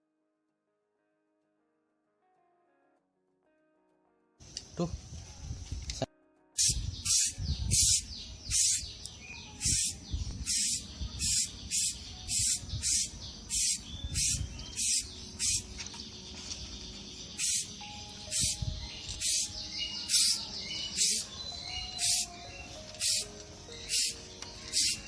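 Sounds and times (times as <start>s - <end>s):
spray paint can hissing: 6.6s - 8.9s, 9.6s - 15.6s, 17.4s - 18.6s, 19.2s - 19.5s, 20.1s - 20.4s, 21.0s - 21.3s, 22.0s - 22.3s, 23.0s - 23.3s, 23.9s - 25.0s.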